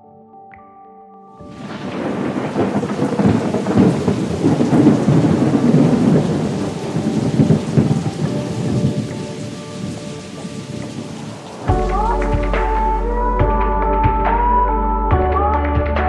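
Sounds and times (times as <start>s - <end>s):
steady rain: 1.4s - 13.2s
rolling thunder: 1.4s - 14.4s.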